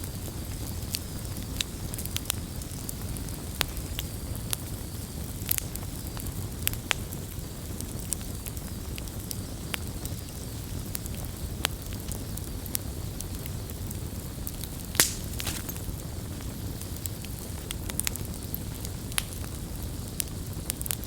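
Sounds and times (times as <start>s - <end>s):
wood fire crackling and popping: 0.1s - 21.0s
fire low rumble: 7.2s - 21.0s.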